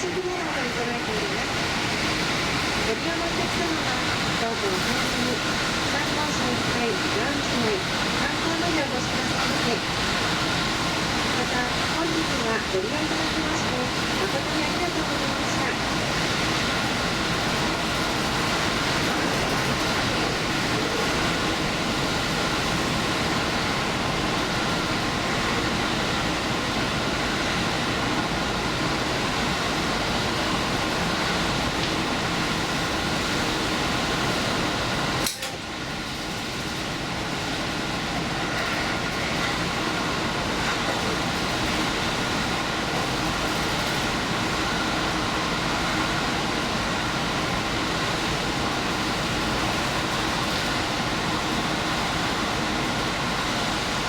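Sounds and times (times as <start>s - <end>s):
train running rumble: 0.0s - 54.0s.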